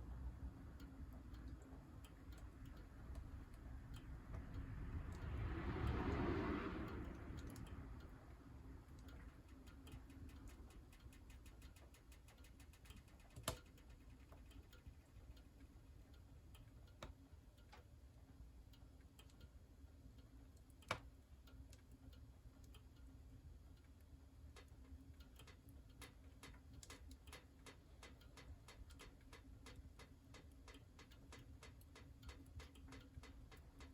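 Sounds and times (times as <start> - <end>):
soft rushing noise: 4.3 - 8.2.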